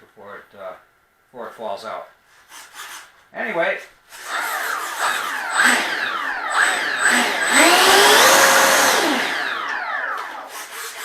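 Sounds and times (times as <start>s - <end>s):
electric ducted fan whine: 4.2s - 10.5s.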